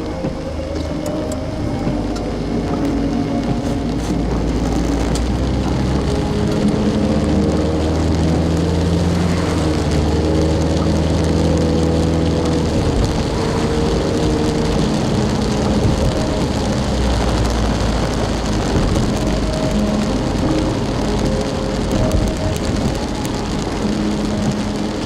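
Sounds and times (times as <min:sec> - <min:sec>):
car engine humming: 0:00.0 - 0:25.0
heavy rain and wet road noise: 0:00.0 - 0:25.0.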